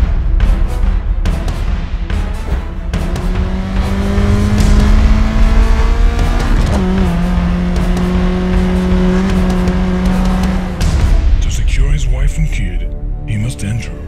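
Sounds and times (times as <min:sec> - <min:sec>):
car engine running under load: 0:03.0 - 0:10.8.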